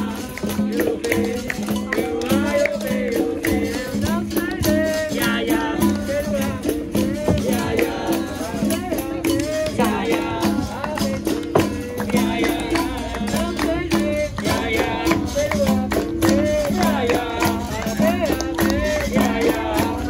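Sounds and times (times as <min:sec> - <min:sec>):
berimbau playing: 0:00.0 - 0:20.0
group singing: 0:00.0 - 0:20.0
hand percussion: 0:00.0 - 0:20.0.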